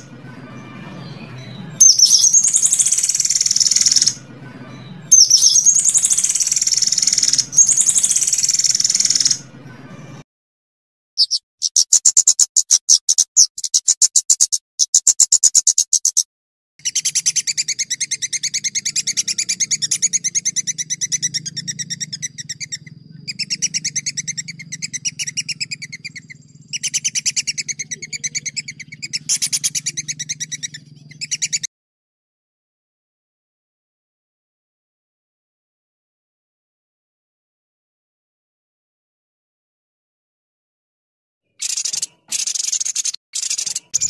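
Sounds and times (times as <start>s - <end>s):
songbird trilling: 0.6s - 4.2s, 4.8s - 9.5s, 11.2s - 31.7s, 41.6s - 44.0s.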